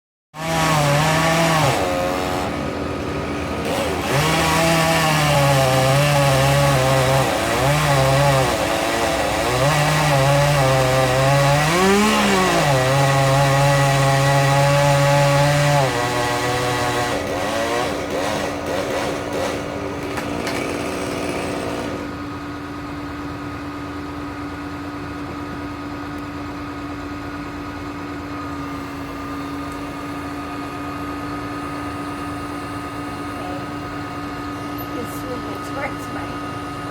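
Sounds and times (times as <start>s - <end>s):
chainsaw cutting wood: 0.4s - 22.2s
engine humming: 0.8s - 14.1s.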